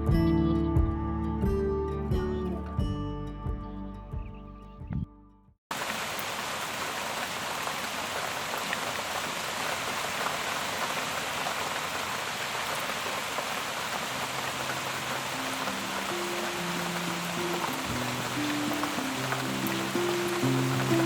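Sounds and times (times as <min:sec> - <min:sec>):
soft low music notes: 0:00.0 - 0:05.4
steady rain hiss: 0:05.7 - 0:21.0
raindrop ticks: 0:14.1 - 0:21.0.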